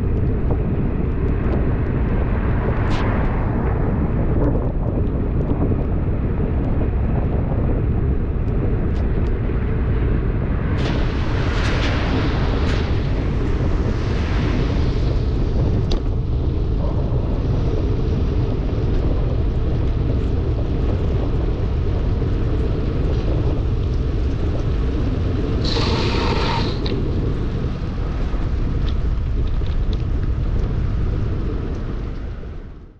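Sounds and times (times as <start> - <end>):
wind buffeting microphone: 0.0 - 32.9
hiss of rain: 10.7 - 32.6.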